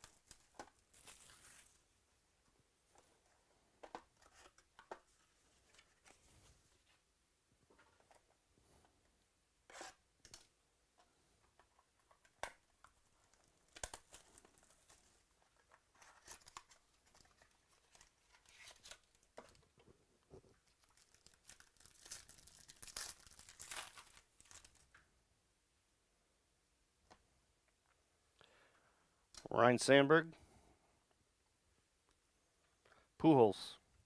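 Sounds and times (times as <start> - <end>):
packaging tearing and crinkling: 0.0 - 1.8, 13.1 - 15.1, 15.9 - 19.3, 20.6 - 24.8.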